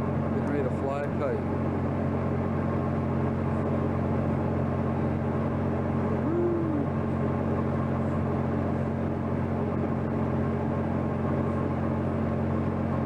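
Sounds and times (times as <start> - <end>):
ship engines low drone: 0.0 - 13.0.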